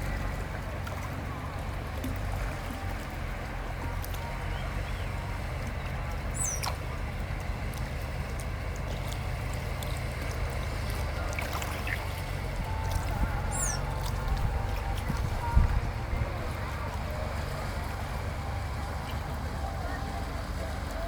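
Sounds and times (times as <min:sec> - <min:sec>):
running water rushing: 0:00.0 - 0:21.0
high descending bird chirp: 0:06.4 - 0:06.7, 0:13.5 - 0:13.8
low rumble: 0:10.8 - 0:21.0.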